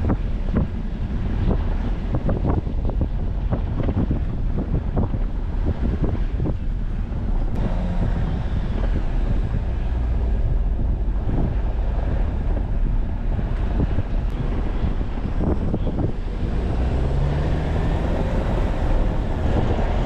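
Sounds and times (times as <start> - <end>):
engine and tyres rumbling: 0.0 - 20.0
wind on microphone: 0.0 - 20.0.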